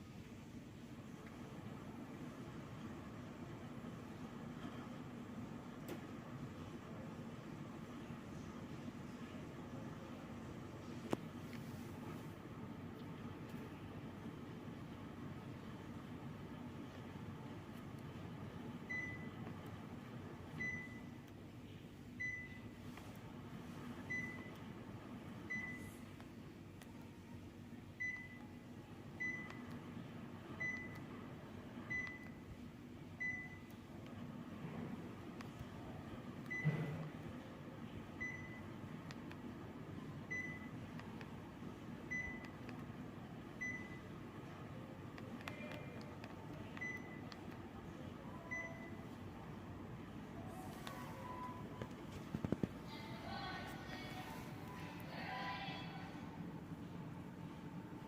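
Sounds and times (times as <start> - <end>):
air conditioner low hum: 0.0 - 58.0
air conditioner short high beeps: 18.8 - 19.6, 20.5 - 21.3, 22.1 - 23.2, 24.0 - 24.7, 25.3 - 26.2, 27.7 - 29.8, 30.5 - 31.2, 31.8 - 33.9, 35.8 - 37.2, 38.1 - 38.9, 40.0 - 41.1, 42.0 - 42.8, 43.5 - 44.6, 45.2 - 47.6, 48.2 - 49.5, 50.3 - 56.0.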